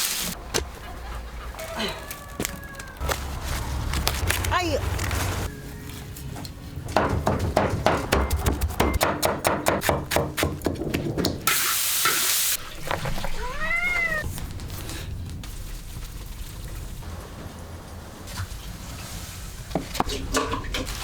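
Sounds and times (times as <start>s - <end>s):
sharp knocks: 6.9s - 11.4s.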